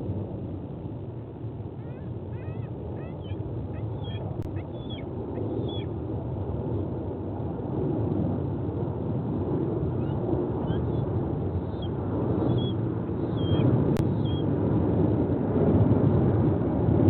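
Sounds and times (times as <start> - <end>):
wind rumble on microphone: 0.0 - 17.0
eagle yelping calls: 1.8 - 5.9, 10.0 - 14.4.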